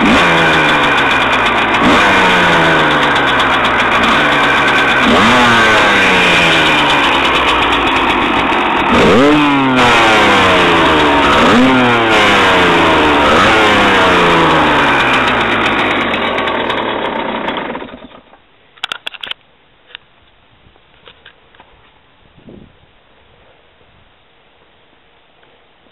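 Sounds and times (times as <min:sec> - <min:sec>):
two-stroke engine revving: 0:00.0 - 0:18.4.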